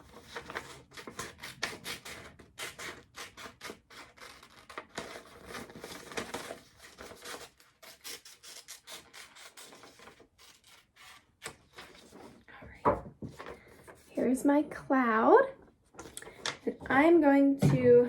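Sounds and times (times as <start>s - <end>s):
scissors snipping paper: 0.0s - 12.1s
paper rustling: 0.0s - 14.2s.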